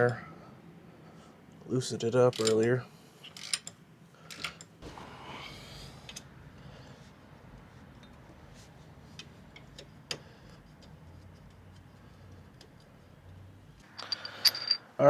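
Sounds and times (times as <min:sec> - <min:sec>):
metal tools clattering: 0:13.8 - 0:14.9.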